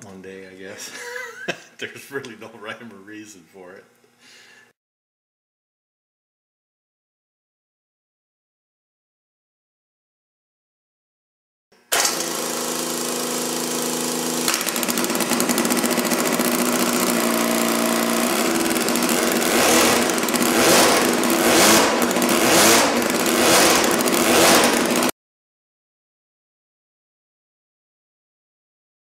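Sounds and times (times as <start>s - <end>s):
electric roller starter spinning: 11.8s - 25.1s
motorcycle engine revving: 12.0s - 25.1s.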